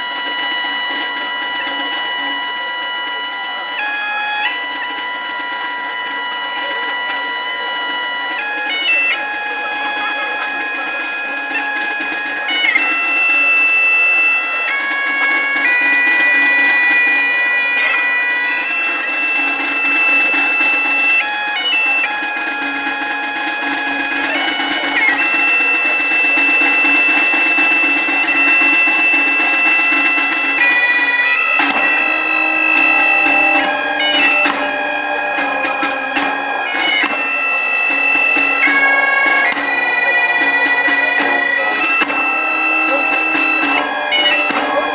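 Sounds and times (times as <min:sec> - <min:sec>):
bagpipes playing a tune: 0:00.0 - 0:44.9.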